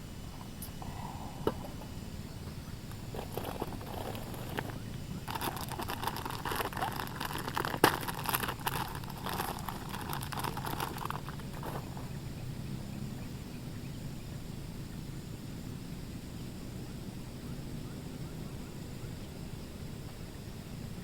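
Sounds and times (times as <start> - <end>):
faint low background noise: 0.0 - 21.0
small clicks and rustles: 2.9 - 12.0.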